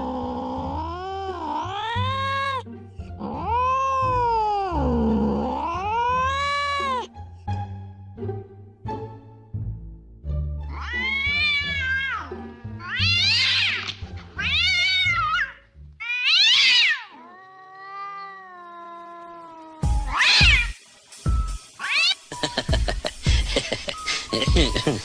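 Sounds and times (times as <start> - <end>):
background music: 0.0 - 16.0, 19.6 - 25.0
cat meowing: 0.6 - 2.6, 3.2 - 7.1, 10.7 - 20.8, 21.8 - 22.4.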